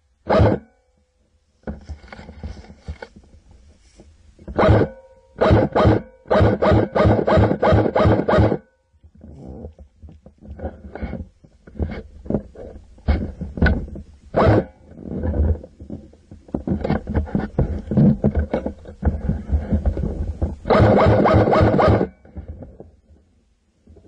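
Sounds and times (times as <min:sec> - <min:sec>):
knocks and rustling of handling: 0:01.5 - 0:05.2, 0:09.0 - 0:20.7
airsoft rifle full auto burst: 0:04.6 - 0:08.6, 0:20.7 - 0:22.1.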